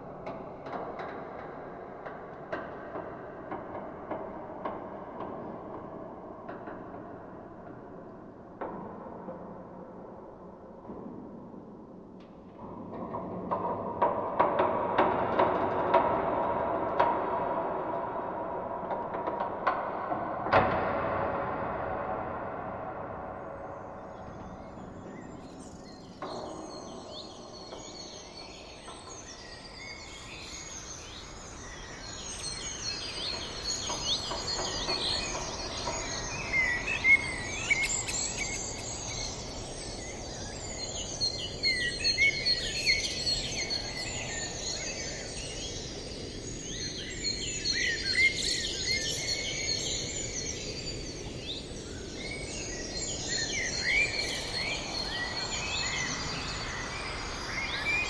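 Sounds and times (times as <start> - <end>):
steady background hiss: 20.0 - 58.0
small birds chirping: 23.4 - 58.0.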